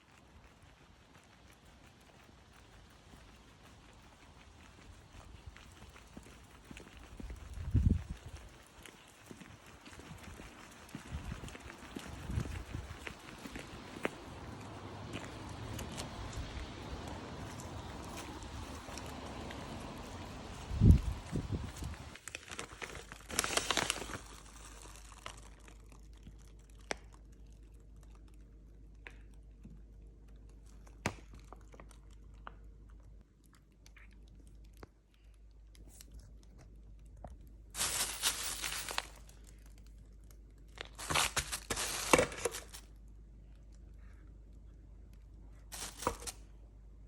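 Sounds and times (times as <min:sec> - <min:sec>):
packaging crinkling and tearing: 0:21.8 - 0:28.3, 0:37.8 - 0:42.9, 0:45.7 - 0:46.4.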